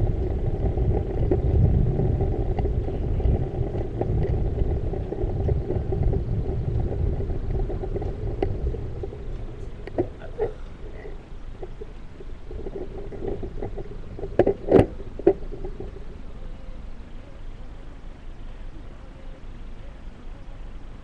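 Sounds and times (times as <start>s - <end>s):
bicycle tyre noise: 0.0s - 16.3s
wind buffeting: 0.0s - 18.5s.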